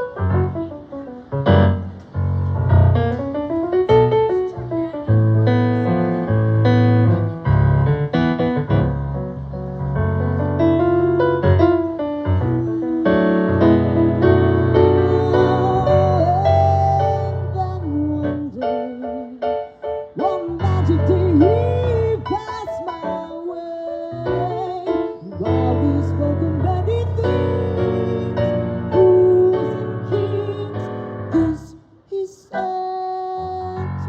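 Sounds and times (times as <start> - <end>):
low bass notes: 0.0 - 18.6
piano chords: 0.0 - 31.8, 32.5 - 34.0
slow jazz ballad: 0.0 - 34.0.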